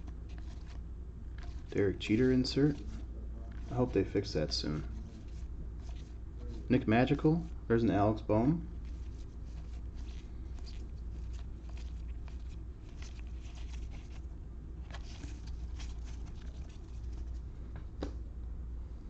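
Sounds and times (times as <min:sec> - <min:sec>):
cards being flipped: 0:00.0 - 0:06.2, 0:08.8 - 0:17.4.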